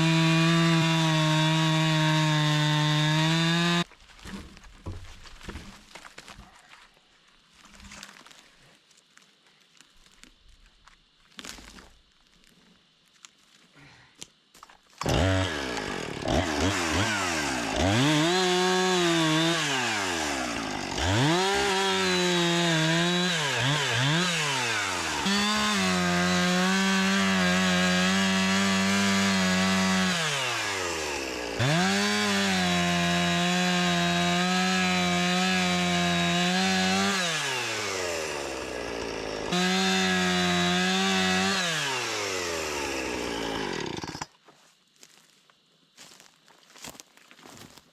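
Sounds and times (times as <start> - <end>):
chainsaw revving and idling: 0.0 - 3.9, 15.0 - 44.3.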